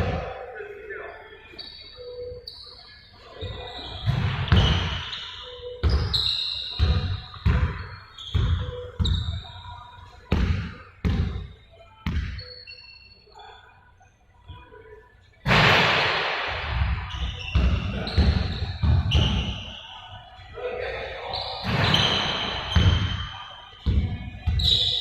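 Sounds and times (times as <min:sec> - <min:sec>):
shoe squeaks: 0:01.2 - 0:13.8, 0:16.8 - 0:20.5, 0:21.1 - 0:25.0
basketball bouncing on gym floor: 0:04.0 - 0:05.0, 0:05.8 - 0:09.4, 0:10.3 - 0:12.4, 0:15.5 - 0:19.6, 0:21.6 - 0:24.9.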